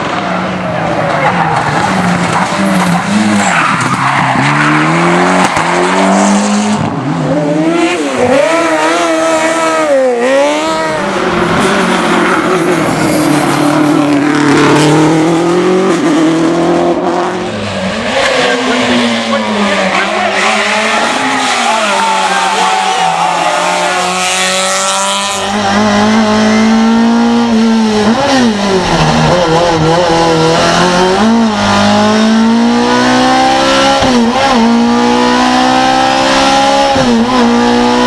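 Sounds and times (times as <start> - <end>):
rally car engine revving: 0.0 - 38.0.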